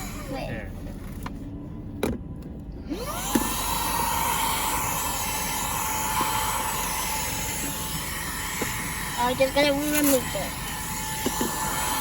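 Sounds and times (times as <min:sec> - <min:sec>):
vacuum cleaner motor whining: 0:02.9 - 0:12.0.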